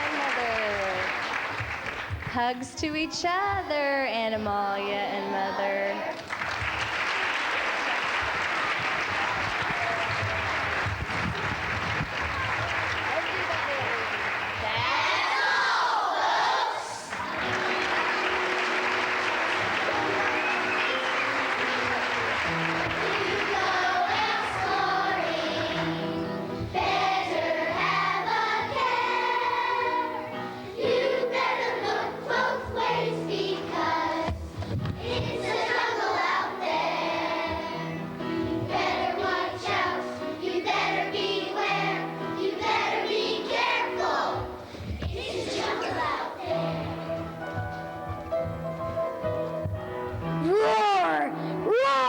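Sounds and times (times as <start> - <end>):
audience applauding: 0.0 - 2.3, 6.2 - 15.6, 17.0 - 25.8
children's choir singing: 3.0 - 48.5
instrumental accompaniment: 17.2 - 51.8.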